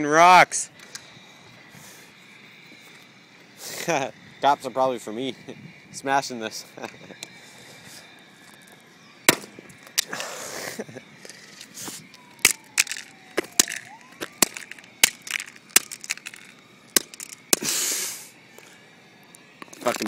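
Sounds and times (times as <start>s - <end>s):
phone plastic and glass cracking: 11.2s - 17.6s, 19.6s - 20.0s.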